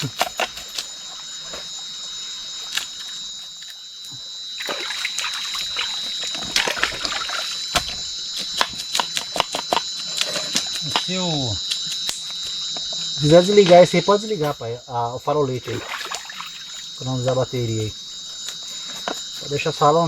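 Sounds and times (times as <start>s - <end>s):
night insects droning: 0.0s - 20.0s.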